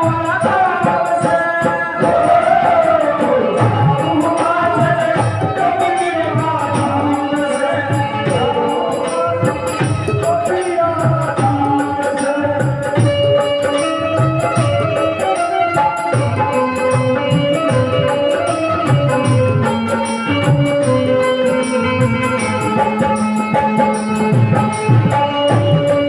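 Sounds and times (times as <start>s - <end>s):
hand drum rhythm: 0.0s - 26.0s.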